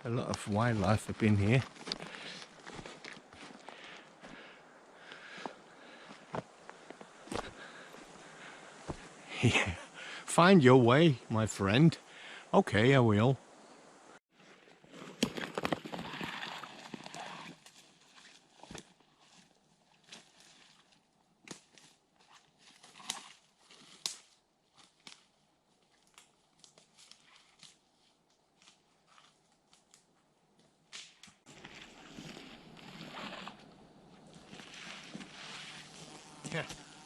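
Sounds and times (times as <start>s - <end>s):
footsteps through undergrowth: 0.2s - 4.5s, 5.1s - 9.2s, 14.4s - 36.9s
twigs snapping underfoot: 21.4s - 30.1s, 30.9s - 33.6s
vegetation rustling: 31.0s - 37.0s.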